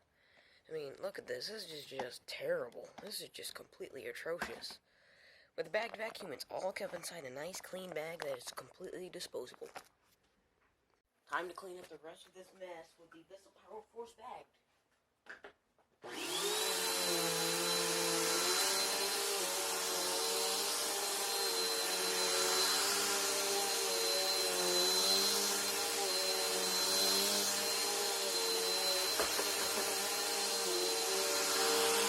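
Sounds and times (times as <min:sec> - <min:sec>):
vacuum cleaner whine: 0:16.0 - 0:32.0.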